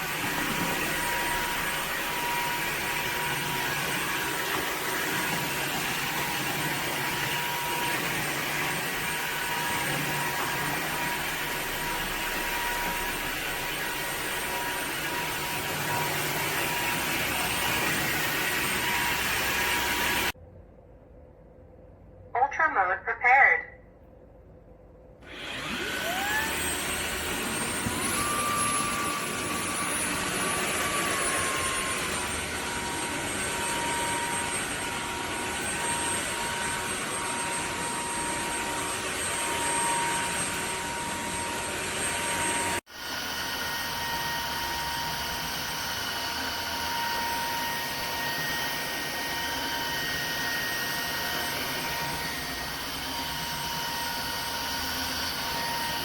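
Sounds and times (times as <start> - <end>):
vacuum motor whining: 0.0 - 20.4, 25.2 - 56.0.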